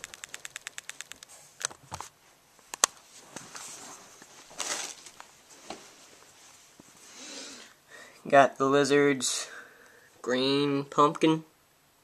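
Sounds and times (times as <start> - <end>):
crinkly plastic rustles: 3.2 - 6.3.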